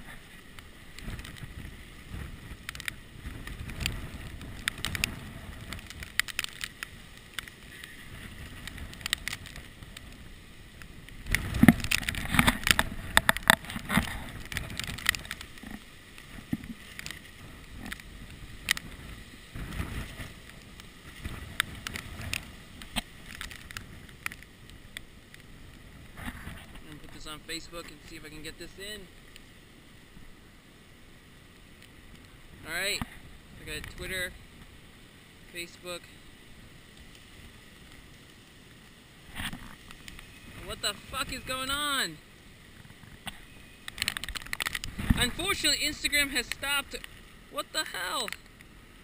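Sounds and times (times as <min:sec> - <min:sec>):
muffled wind buffeting camera case: 0:00.0 - 0:27.2, 0:36.8 - 0:41.6, 0:42.6 - 0:45.5.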